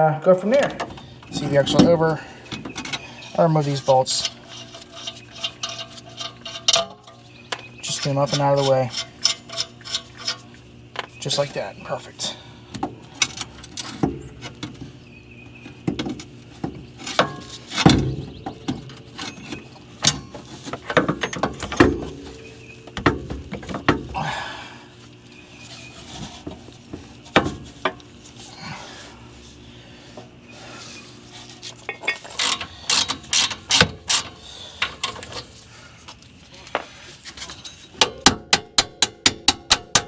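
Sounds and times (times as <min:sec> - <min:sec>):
hand tools clinking on metal: 0:02.6 - 0:11.4, 0:31.8 - 0:35.4.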